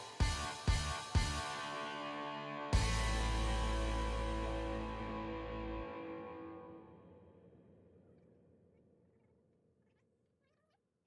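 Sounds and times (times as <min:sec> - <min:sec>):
drum beat: 0:00.0 - 0:01.5
held chord: 0:00.2 - 0:06.7.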